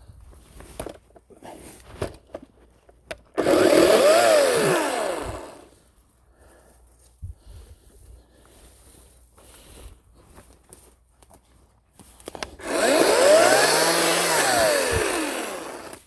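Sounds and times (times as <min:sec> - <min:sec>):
electric chainsaw burst: 0:03.4 - 0:05.6, 0:12.6 - 0:16.0.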